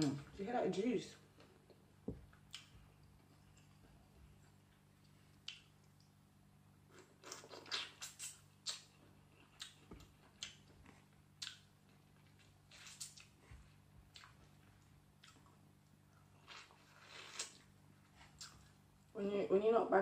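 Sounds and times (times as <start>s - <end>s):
faint low hum: 0.0s - 20.0s
wet mouth clicks and smacks chewing: 5.0s - 6.1s, 7.2s - 11.7s.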